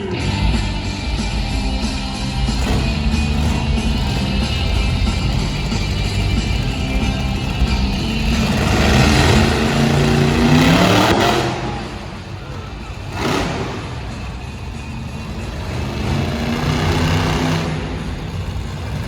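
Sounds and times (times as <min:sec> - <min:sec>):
monster truck engines revving: 0:00.0 - 0:19.0
sharp bangs: 0:01.1 - 0:19.0.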